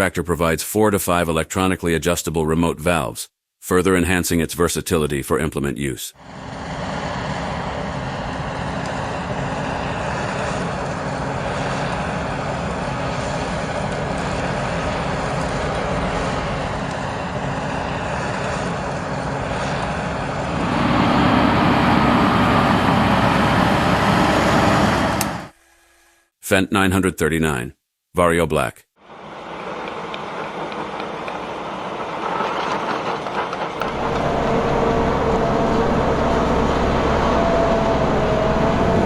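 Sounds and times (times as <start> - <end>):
tractor diesel engine running: 6.4 - 25.5, 29.1 - 39.0.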